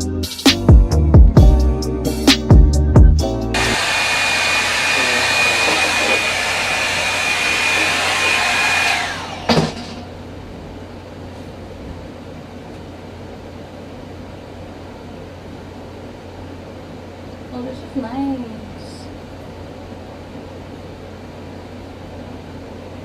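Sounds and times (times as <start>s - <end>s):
hair dryer brush running: 3.6s - 10.1s.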